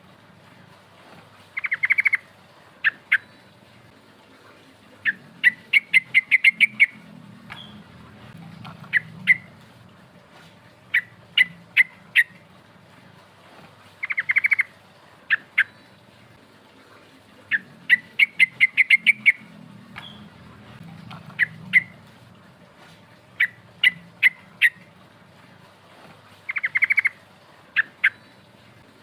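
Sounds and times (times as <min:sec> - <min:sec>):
bird singing sharp notes and trills: 0:01.6 - 0:03.5, 0:05.0 - 0:07.8, 0:14.0 - 0:14.7, 0:17.5 - 0:20.4, 0:21.0 - 0:22.0, 0:26.5 - 0:27.2.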